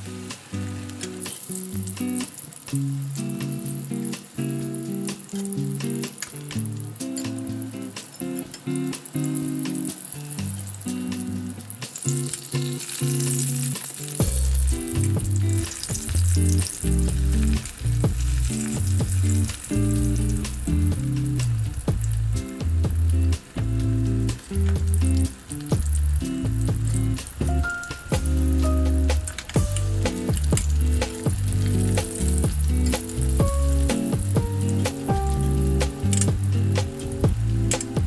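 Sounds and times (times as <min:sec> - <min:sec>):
vegetables sizzling in oil: 0:00.0 - 0:38.0
bass line: 0:14.2 - 0:37.8
background music: 0:14.2 - 0:38.0.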